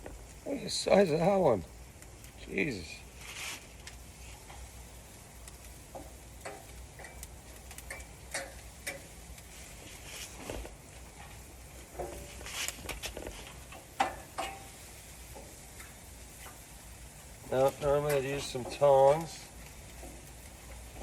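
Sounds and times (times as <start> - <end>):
light clicks and taps: 5.5 - 9.1.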